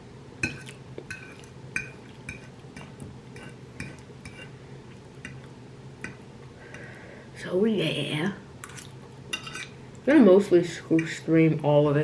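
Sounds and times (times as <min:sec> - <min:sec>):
fork clinking on a plate: 0:09.3 - 0:09.7.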